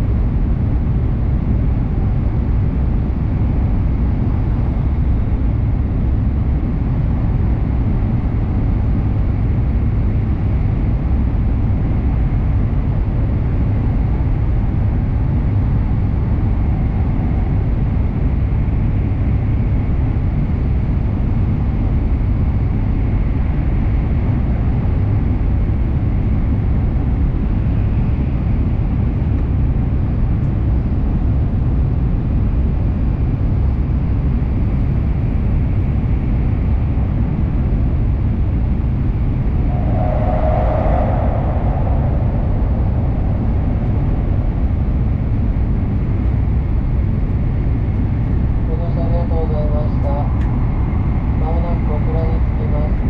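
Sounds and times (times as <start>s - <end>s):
train rumbling in tunnel: 0.0s - 53.0s
faint high hum: 38.5s - 53.0s.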